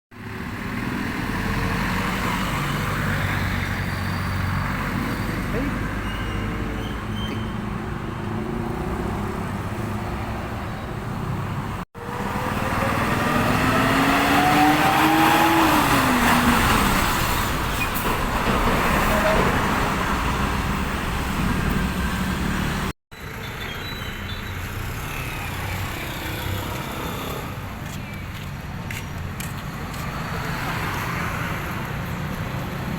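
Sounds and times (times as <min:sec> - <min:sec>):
road traffic: 0:00.1 - 0:32.9
truck engine accelerating: 0:11.7 - 0:23.0.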